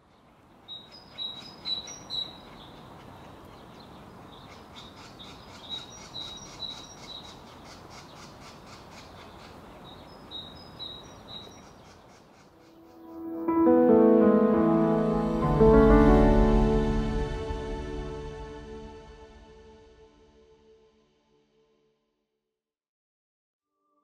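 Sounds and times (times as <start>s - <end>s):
woodland ambience hiss: 0.0s - 13.0s.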